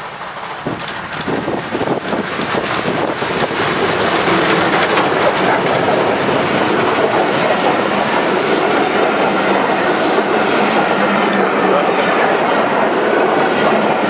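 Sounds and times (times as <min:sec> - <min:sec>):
steam locomotive passing: 0:00.0 - 0:14.0
train wheels running on rails: 0:00.0 - 0:14.0.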